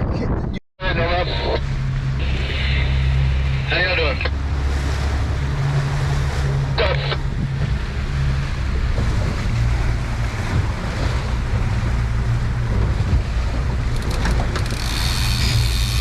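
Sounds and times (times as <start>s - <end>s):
wind on the microphone: 0.0s - 0.6s, 7.2s - 16.0s
water along the hull: 0.0s - 16.0s
motorboat engine humming: 0.8s - 16.0s.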